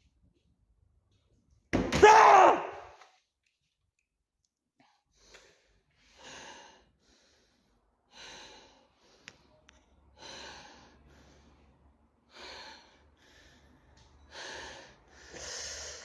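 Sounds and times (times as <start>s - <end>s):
man breathing heavily: 5.0s - 16.0s.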